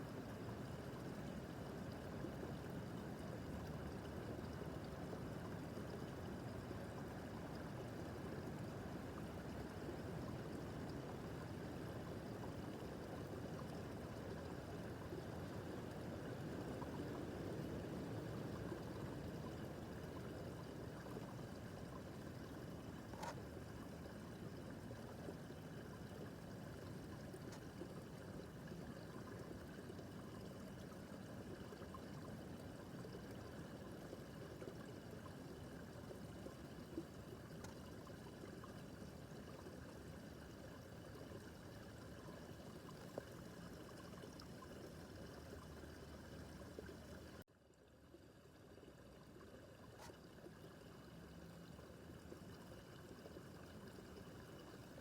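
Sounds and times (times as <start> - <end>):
brook babbling over rocks: 0.0 - 55.0
faint tick: 37.5 - 37.8.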